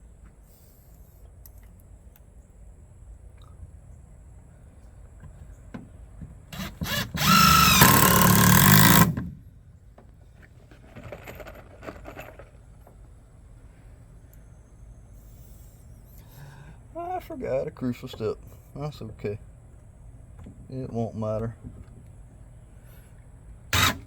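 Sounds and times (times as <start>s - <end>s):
power drill drilling into wood: 6.6s - 9.3s, 23.7s - 24.0s.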